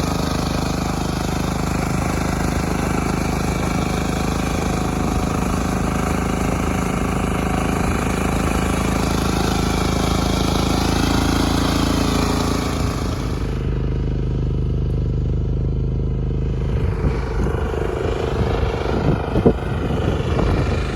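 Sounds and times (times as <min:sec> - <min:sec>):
small engine running: 0:00.0 - 0:20.9.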